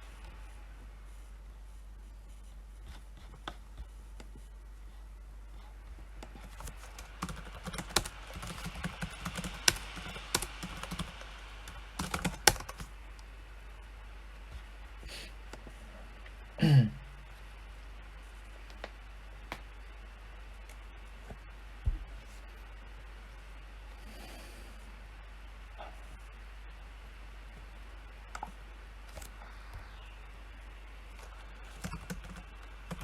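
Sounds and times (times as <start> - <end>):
typing on keyboard: 6.2 - 12.9, 31.7 - 33.0.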